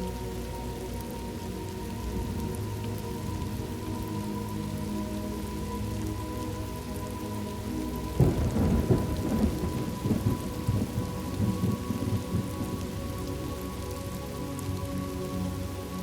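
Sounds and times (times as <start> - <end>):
soft music drone: 0.0 - 16.0
steady rain: 0.0 - 16.0
thunderclap rumbling: 8.2 - 12.8.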